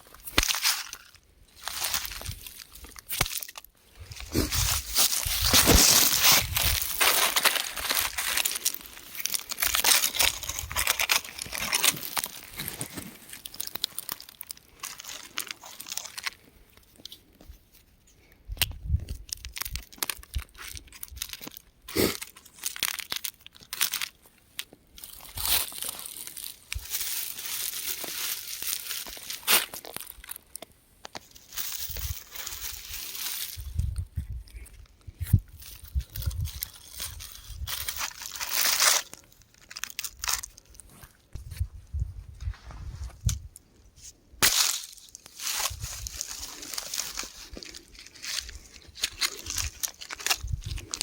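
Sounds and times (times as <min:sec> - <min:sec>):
rock crumbling and crunching: 0:00.0 - 0:16.4, 0:44.4 - 0:51.0.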